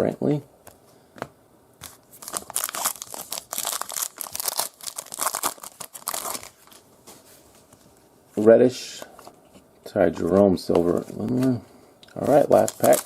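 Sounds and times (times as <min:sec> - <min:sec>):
plastic wrapper tearing and crinkling: 0:01.9 - 0:06.8, 0:12.2 - 0:13.0.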